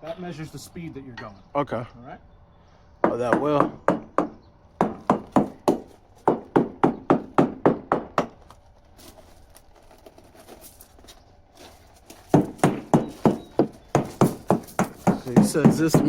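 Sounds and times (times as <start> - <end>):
hammer tapping fiberglass hull: 3.0 - 8.5, 12.3 - 16.0.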